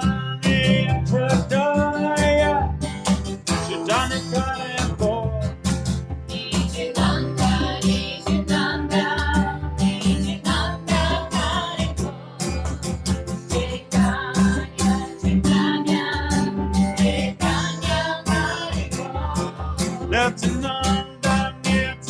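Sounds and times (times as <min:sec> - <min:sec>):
acoustic guitar strumming: 0:00.0 - 0:22.0
voices singing: 0:06.3 - 0:22.0.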